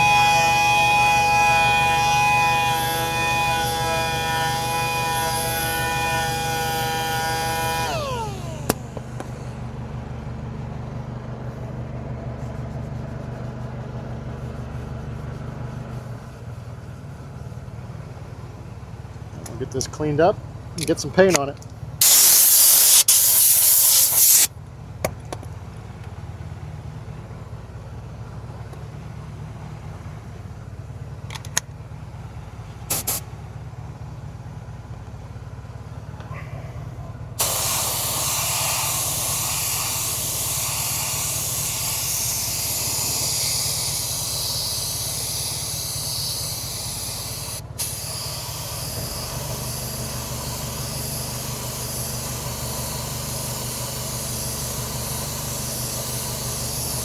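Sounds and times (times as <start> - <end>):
paint spray hissing: 0.0 - 9.5, 22.0 - 24.5, 32.9 - 33.2, 37.4 - 57.0
low machine hum: 0.0 - 20.7, 35.1 - 57.0.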